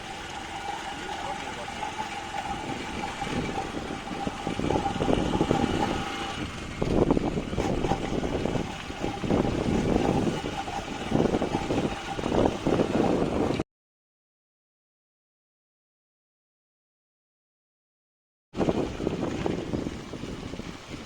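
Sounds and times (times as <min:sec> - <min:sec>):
steady whine: 0:00.0 - 0:13.6
vehicle engine and road noise: 0:00.0 - 0:13.6.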